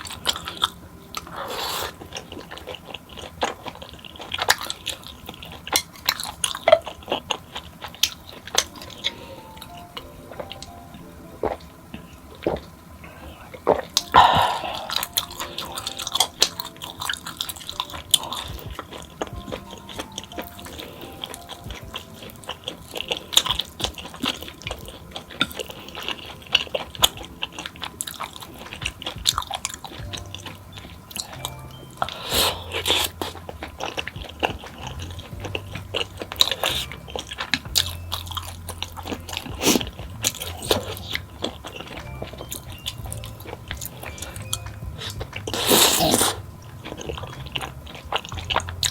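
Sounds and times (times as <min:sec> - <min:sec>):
soft background music: 0:00.0 - 0:48.9
crunchy bites and chewing: 0:11.4 - 0:48.9.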